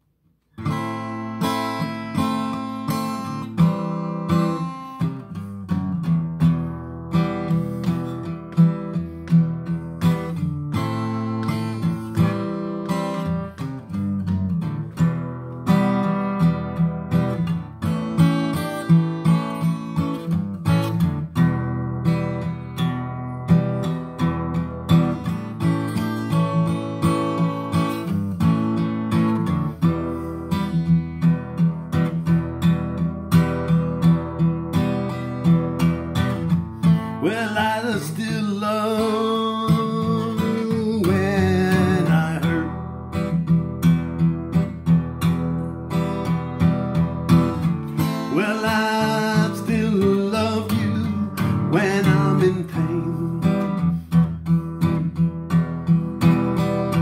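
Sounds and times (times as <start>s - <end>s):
acoustic guitar strumming: 0.4s - 57.0s.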